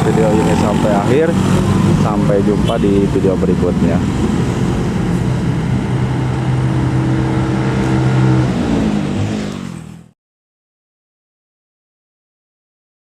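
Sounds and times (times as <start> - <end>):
truck diesel engine running: 0.0 - 10.1.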